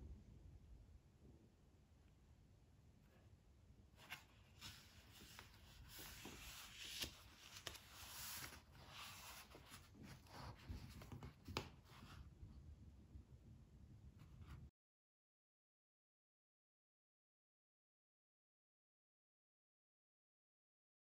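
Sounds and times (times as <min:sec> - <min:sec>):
handling noise rustling: 0:04.0 - 0:12.3.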